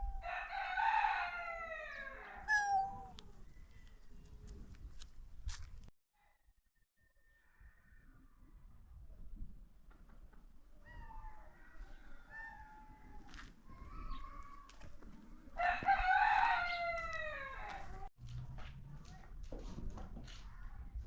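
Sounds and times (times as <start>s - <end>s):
rooster crowing: 0.0s - 3.0s, 15.6s - 18.0s
chickens calling: 0.0s - 3.2s.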